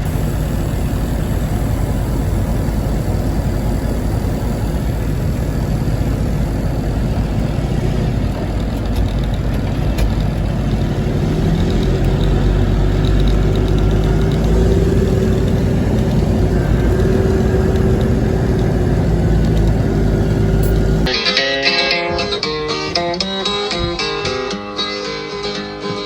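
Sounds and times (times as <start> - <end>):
truck engine idling: 0.0 - 21.1
country music with plucked guitar: 21.1 - 26.0.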